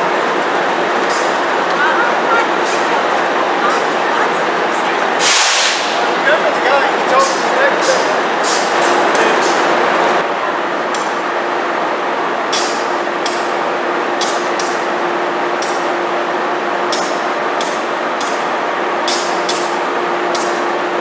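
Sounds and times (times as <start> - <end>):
idling railway equipment hum: 0.0 - 21.0
sharp air hisses: 5.2 - 6.0.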